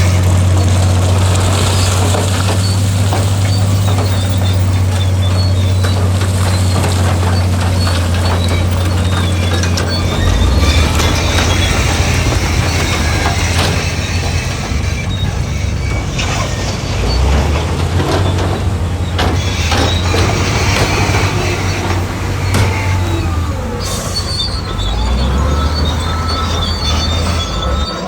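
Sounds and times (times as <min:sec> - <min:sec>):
bulldozer diesel engine running: 0:00.0 - 0:28.0
high squeals of steel tracks: 0:00.0 - 0:28.0
metallic clanks: 0:00.1 - 0:28.0.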